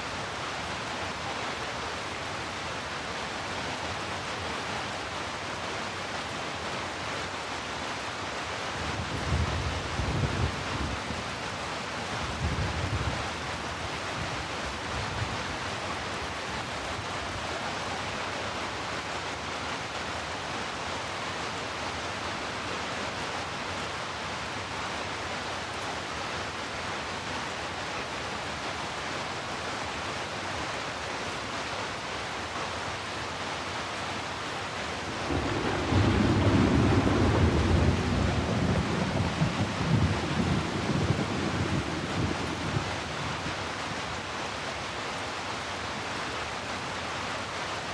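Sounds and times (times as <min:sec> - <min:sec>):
heavy rain hissing: 0:24.5 - 0:47.9.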